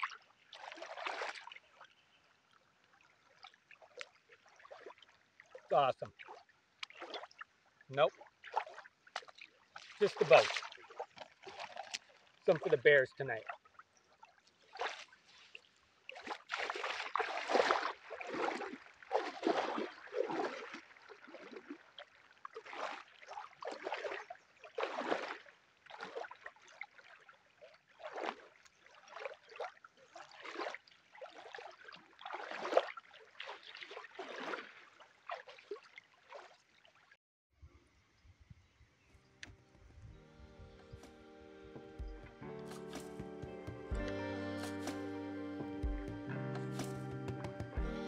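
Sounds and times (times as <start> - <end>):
water splashing and lapping: 0.0 - 37.2, 42.0 - 45.1.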